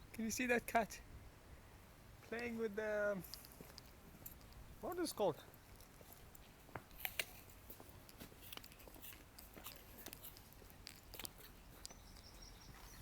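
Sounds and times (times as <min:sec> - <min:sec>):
crunches and clicks: 0:03.2 - 0:12.3
person chewing: 0:08.1 - 0:12.0.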